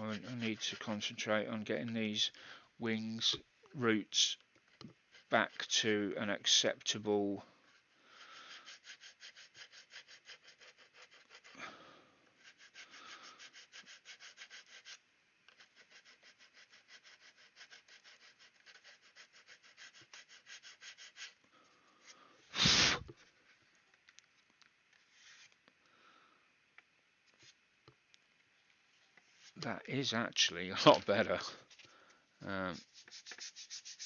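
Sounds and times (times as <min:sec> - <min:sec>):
hand file rasping on plastic: 0:00.0 - 0:01.2, 0:08.2 - 0:11.6, 0:12.4 - 0:21.4, 0:32.7 - 0:34.0
puff of breath blowing: 0:22.4 - 0:23.1.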